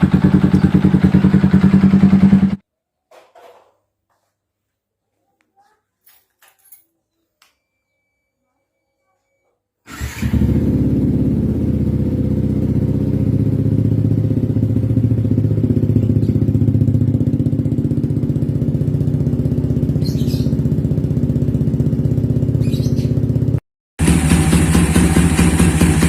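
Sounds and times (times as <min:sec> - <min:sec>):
motorcycle engine idling: 0:00.0 - 0:02.6, 0:10.3 - 0:26.0.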